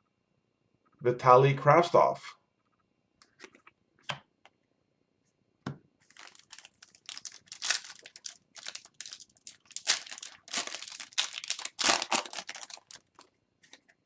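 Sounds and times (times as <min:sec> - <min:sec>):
wrapper crinkling and tearing: 0:06.0 - 0:13.3.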